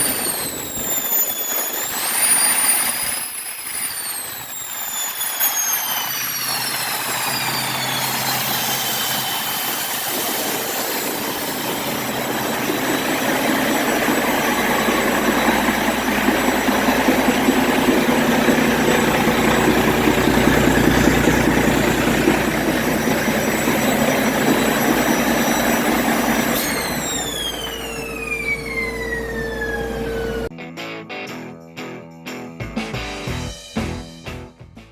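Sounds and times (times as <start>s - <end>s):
high whine: 0.0s - 30.5s
diesel engine revving: 13.7s - 30.5s.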